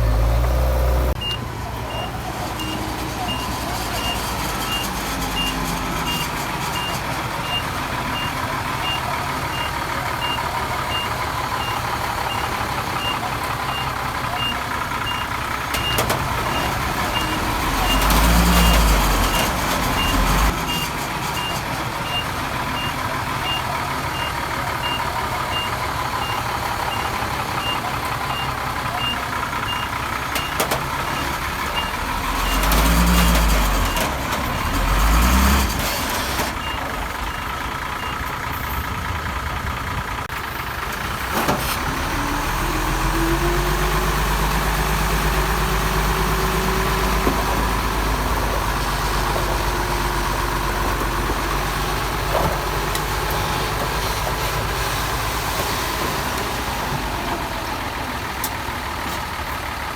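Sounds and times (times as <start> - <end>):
heavy diesel machinery running: 0.0 - 59.9
reversing alarm beeping: 0.1 - 6.2.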